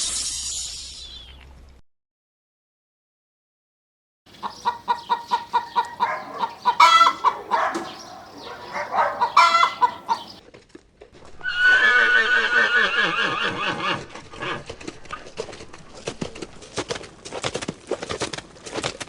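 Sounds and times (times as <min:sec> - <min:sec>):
chickens clucking: 0:04.3 - 0:10.4
long high animal call: 0:04.6 - 0:10.4.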